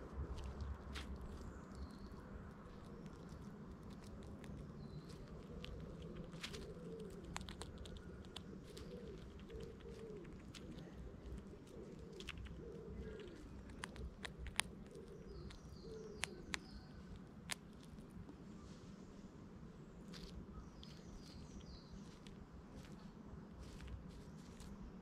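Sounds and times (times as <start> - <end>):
pigeon cooing: 5.1 - 17.1.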